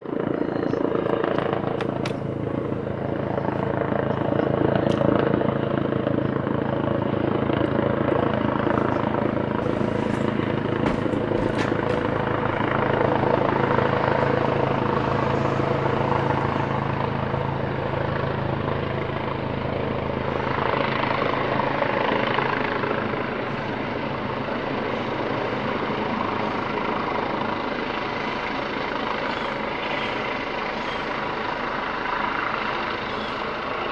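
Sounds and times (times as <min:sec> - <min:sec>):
low hum: 0:00.0 - 0:21.3
helicopter rotor and turbine: 0:00.0 - 0:33.9.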